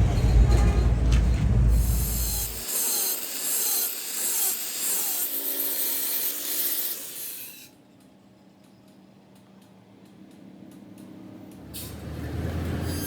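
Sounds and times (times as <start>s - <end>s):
tool scraping metal: 0.0s - 7.7s.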